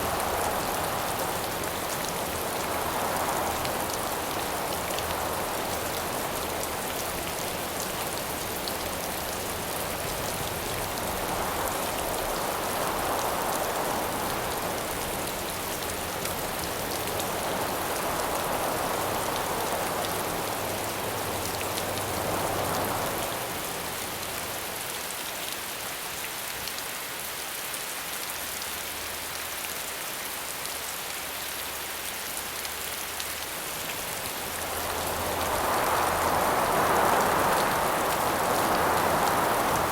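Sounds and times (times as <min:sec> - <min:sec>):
wind howling: 0:00.0 - 0:08.6, 0:33.6 - 0:39.9
steady rain falling: 0:00.0 - 0:39.9.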